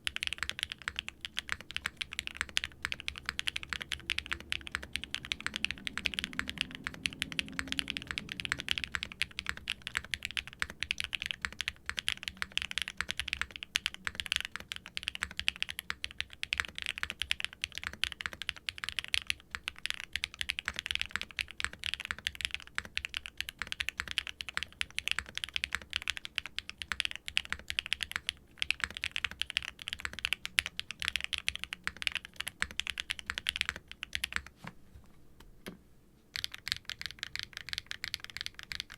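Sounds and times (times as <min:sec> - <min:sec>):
fast typing on mechanical keyboard: 0:00.0 - 0:34.5, 0:36.3 - 0:38.9.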